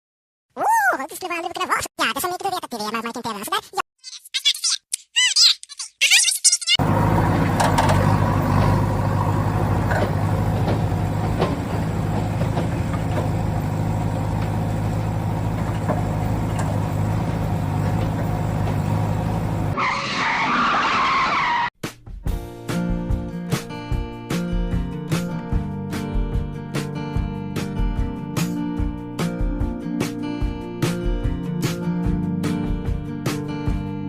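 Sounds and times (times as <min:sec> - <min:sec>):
strummed acoustic guitar music: 0:22.2 - 0:34.0.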